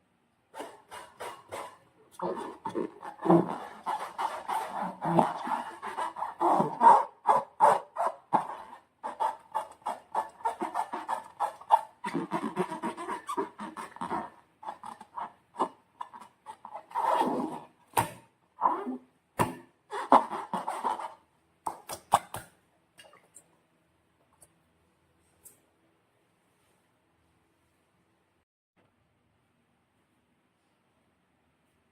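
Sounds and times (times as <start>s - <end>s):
slime squelching: 0.6s - 18.2s.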